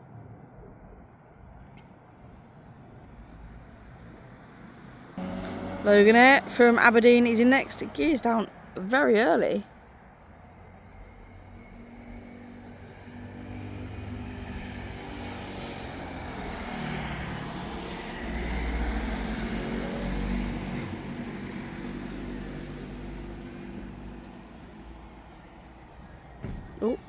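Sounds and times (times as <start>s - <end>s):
airliner engine passing by: 11.5s - 25.1s.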